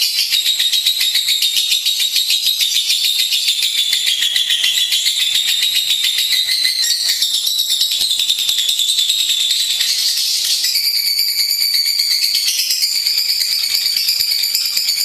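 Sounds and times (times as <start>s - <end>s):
bird chattering trill: 0.0s - 15.0s.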